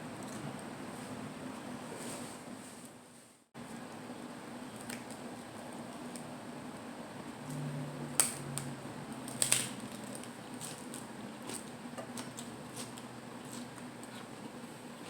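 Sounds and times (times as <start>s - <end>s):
chewing with squishy mouth sounds: 10.0s - 15.0s.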